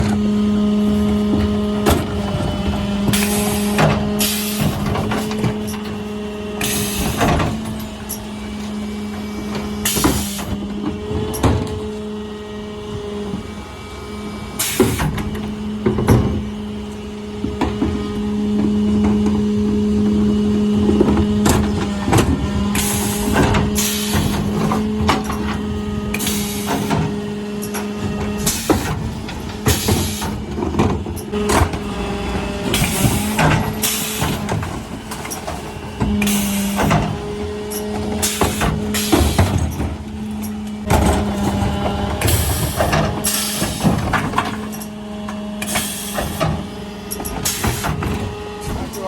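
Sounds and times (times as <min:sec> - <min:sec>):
bins knocking and clattering: 0:00.0 - 0:12.0, 0:14.6 - 0:16.6, 0:17.3 - 0:49.0
truck engine and hydraulics humming: 0:00.0 - 0:49.0.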